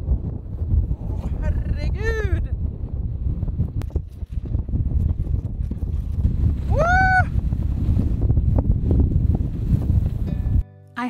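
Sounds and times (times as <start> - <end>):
wind buffeting microphone: 0.0 - 10.6
high wordless cry: 6.7 - 7.3.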